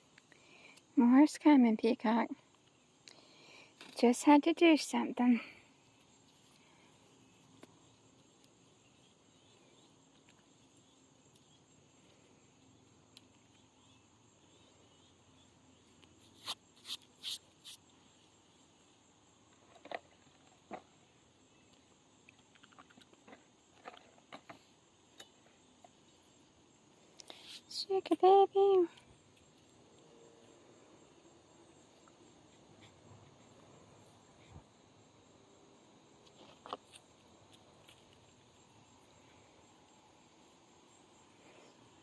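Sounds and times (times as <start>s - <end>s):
faint high insect hum: 0.0s - 42.0s
small ticks: 0.1s - 0.9s, 2.5s - 4.0s, 7.4s - 15.1s, 15.8s - 17.9s, 21.6s - 26.2s, 27.1s - 28.2s, 28.9s - 30.6s, 36.2s - 39.0s.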